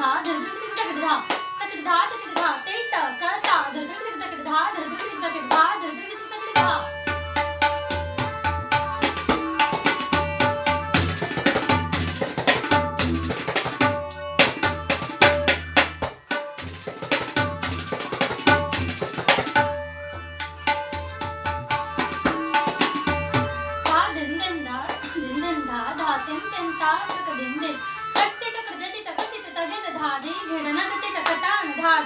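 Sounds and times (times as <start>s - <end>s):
tabla rapid strokes: 6.6s - 25.2s.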